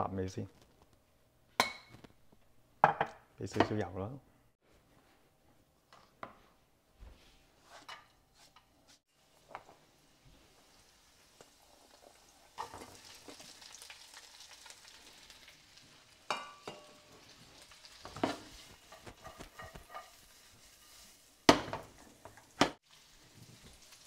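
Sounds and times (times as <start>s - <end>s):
sausage sizzling in oil: 9.0s - 24.0s.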